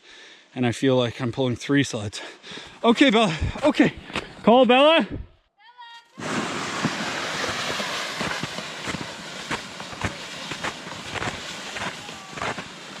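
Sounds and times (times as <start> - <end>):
footsteps crunching: 6.2 - 13.0
sleds scraping over snow: 6.2 - 13.0.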